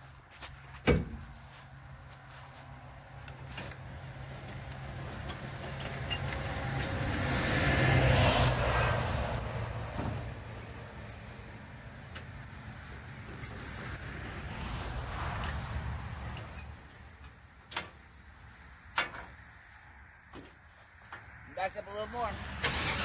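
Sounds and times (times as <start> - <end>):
vehicle passing by: 2.1 - 17.1, 21.3 - 23.0.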